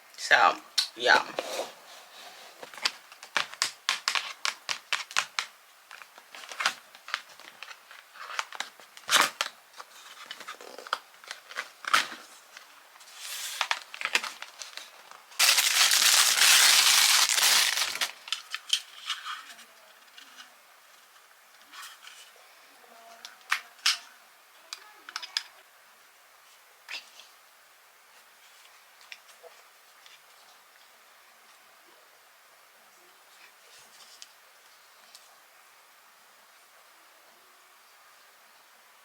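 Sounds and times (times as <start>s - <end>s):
packaging tearing and crinkling: 13.3s - 19.2s.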